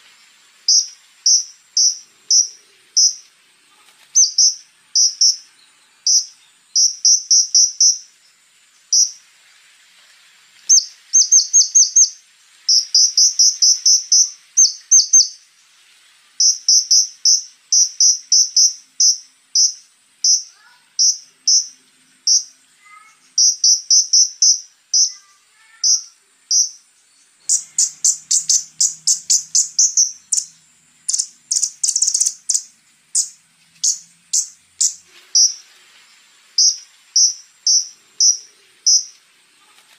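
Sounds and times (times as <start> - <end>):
insect trill: 0.0 - 39.9
bird chipping calls: 0.7 - 3.3, 4.2 - 5.5, 6.1 - 8.1, 10.7 - 15.4, 16.4 - 26.8, 27.4 - 35.6, 36.6 - 39.2.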